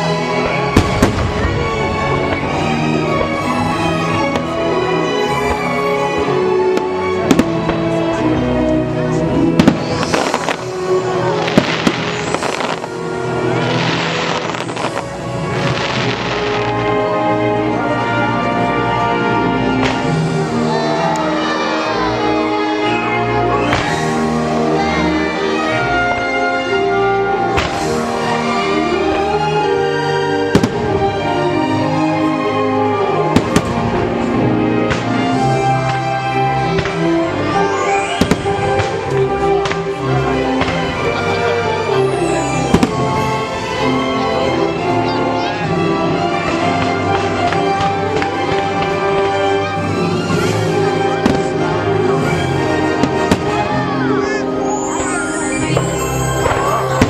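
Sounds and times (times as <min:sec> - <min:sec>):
fireworks bangs and crackling: 0:00.0 - 0:08.3, 0:09.2 - 0:17.1, 0:19.5 - 0:32.4, 0:33.0 - 0:57.0
orchestral music: 0:00.0 - 0:57.0.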